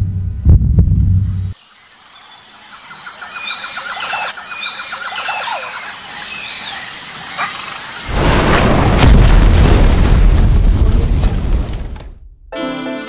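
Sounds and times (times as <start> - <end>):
birds chirping: 1.4 - 8.1
bird trill: 2.8 - 8.0.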